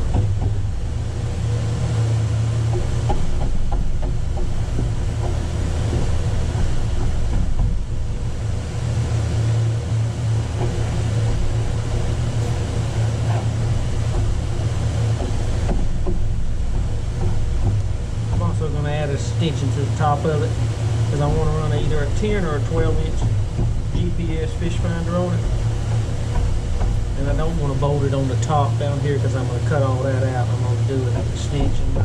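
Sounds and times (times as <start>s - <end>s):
low mechanical hum: 0.0s - 32.0s
faint handling knocks: 10.5s - 32.0s.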